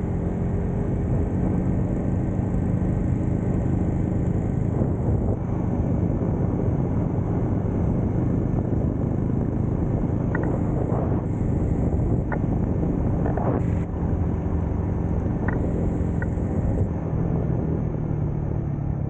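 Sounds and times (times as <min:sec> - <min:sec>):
motorcycle engine cruising: 0:00.0 - 0:19.0
rushing wind noise: 0:00.0 - 0:19.0.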